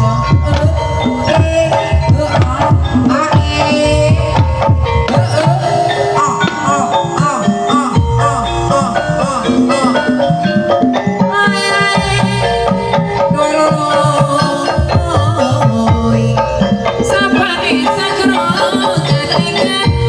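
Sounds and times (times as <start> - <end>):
wavering melodic instrument: 0.0 - 20.0
hand drum strokes: 0.3 - 8.0.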